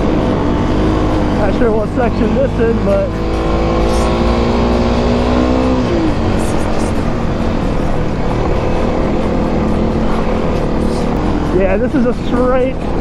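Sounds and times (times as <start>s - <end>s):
motorcycle engine pulling on a climb: 0.0s - 13.0s.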